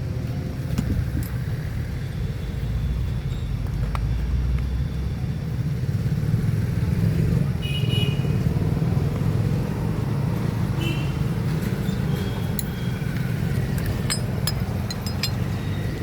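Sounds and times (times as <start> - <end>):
light metallic clinks: 13.7 - 16.0.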